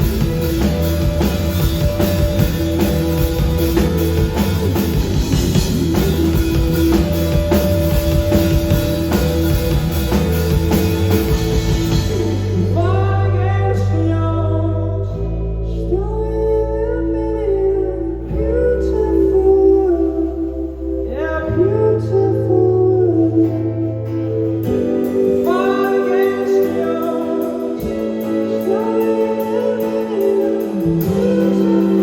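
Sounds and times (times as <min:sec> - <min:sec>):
drum kit: 0:00.0 - 0:13.9, 0:24.6 - 0:32.0
guitar: 0:00.0 - 0:32.0
held bass notes: 0:00.0 - 0:32.0
person singing: 0:00.0 - 0:32.0.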